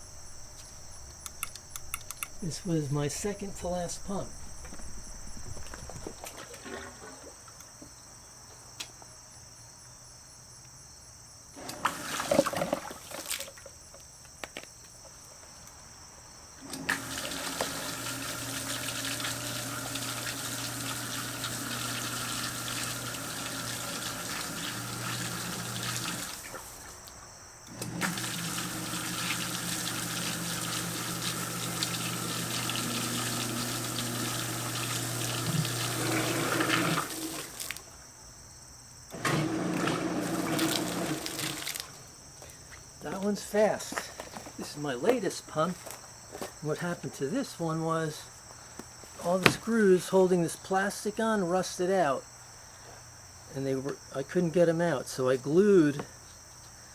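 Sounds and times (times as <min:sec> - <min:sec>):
pump motor hum: 0:11.6 - 0:13.4, 0:16.6 - 0:26.9, 0:27.7 - 0:37.8, 0:39.1 - 0:41.9
water rushing and splashing: 0:39.8 - 0:41.8.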